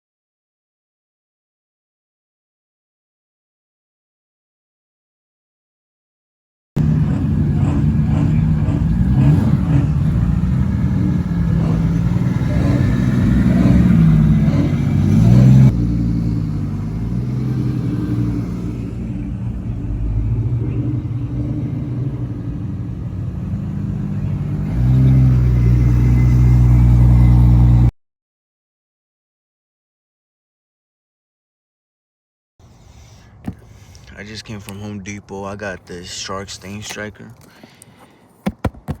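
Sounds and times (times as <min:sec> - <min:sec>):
car engine revving: 0:06.8 - 0:27.9.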